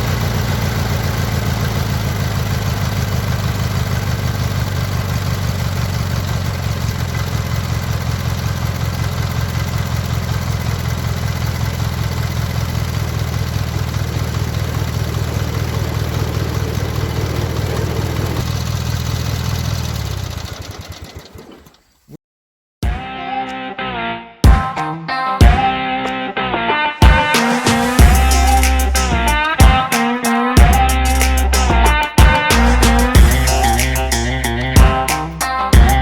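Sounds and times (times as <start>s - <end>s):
lawn tractor engine idling: 0.0s - 22.0s, 27.8s - 29.8s, 32.5s - 36.0s.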